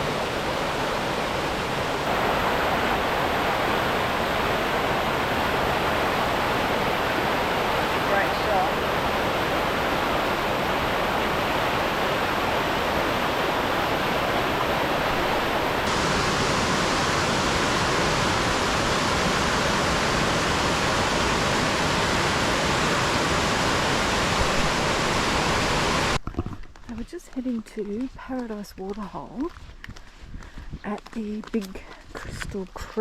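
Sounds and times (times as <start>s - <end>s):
waterfall rushing: 0.0s - 26.2s.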